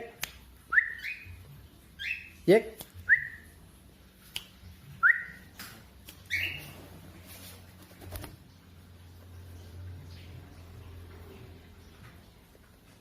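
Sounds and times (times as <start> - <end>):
bird chirp: 0.7 - 3.6, 4.7 - 6.8.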